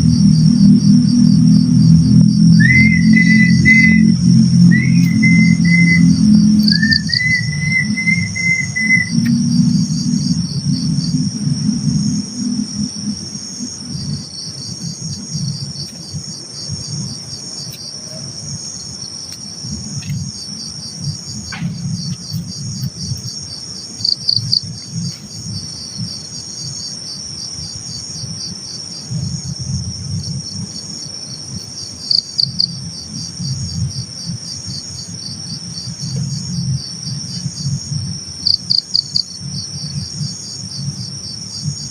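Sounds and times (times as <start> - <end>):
crickets chirping: 0.0 - 41.9
low rumbling noise: 0.0 - 41.9
short whistle-like tone: 2.6 - 9.3.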